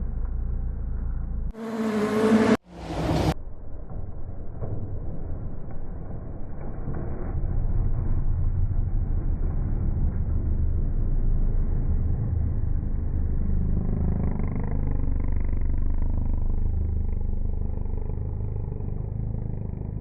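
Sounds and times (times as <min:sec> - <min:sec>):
road rumble: 0:00.0 - 0:20.0
rally car engine running hard: 0:09.2 - 0:20.0.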